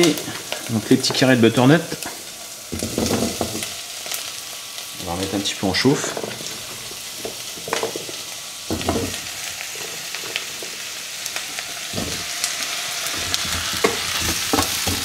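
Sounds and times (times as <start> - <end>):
vegetables sizzling in oil: 0.0 - 15.0
pan knocking: 2.7 - 3.7, 6.0 - 9.2
wooden spatula stirring: 5.9 - 10.8.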